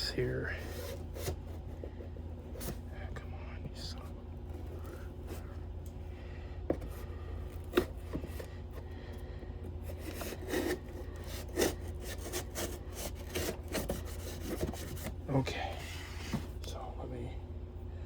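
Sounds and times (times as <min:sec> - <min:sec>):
steady low hum: 0:00.0 - 0:18.0
knife scraping cardboard: 0:00.6 - 0:02.8, 0:06.7 - 0:08.5, 0:09.7 - 0:15.2.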